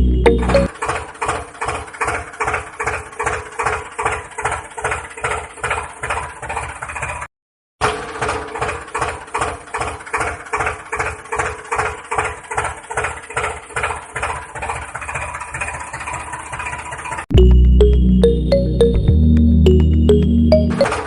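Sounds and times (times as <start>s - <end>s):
tractor engine idling: 0.0s - 7.2s, 7.8s - 18.9s.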